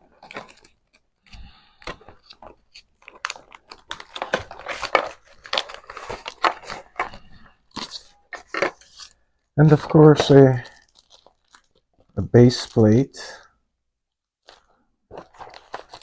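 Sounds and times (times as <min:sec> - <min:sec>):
packaging crinkling and rustling: 0:00.0 - 0:13.0, 0:14.4 - 0:16.0.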